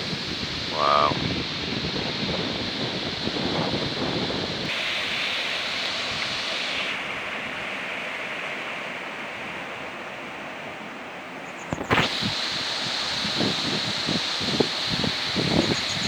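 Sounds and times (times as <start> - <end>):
wind buffeting microphone: 0.0 - 7.7, 11.6 - 16.0
waterfall rushing: 0.0 - 16.0.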